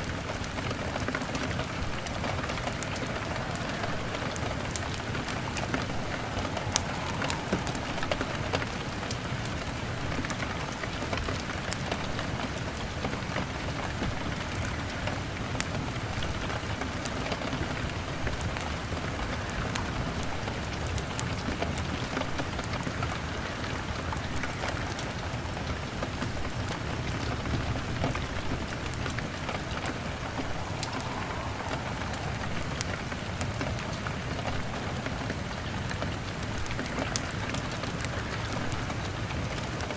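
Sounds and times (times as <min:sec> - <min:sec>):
rain pattering on window: 0:00.0 - 0:39.9
wood fire crackling: 0:00.4 - 0:10.0, 0:28.5 - 0:35.1.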